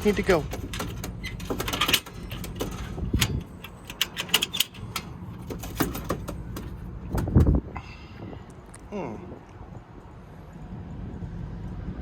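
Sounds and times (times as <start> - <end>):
pigeon carrier clicks and rattles: 0.0 - 7.6.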